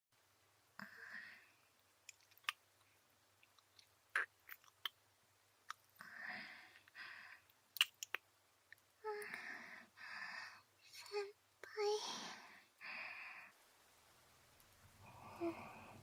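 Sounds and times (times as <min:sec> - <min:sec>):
lip smacks: 0:02.0 - 0:02.6, 0:03.4 - 0:05.0, 0:07.7 - 0:08.8
wet mouth clicks: 0:02.0 - 0:02.6, 0:03.4 - 0:05.0, 0:05.7 - 0:05.9, 0:07.8 - 0:08.8
breathy whispers: 0:15.0 - 0:16.0.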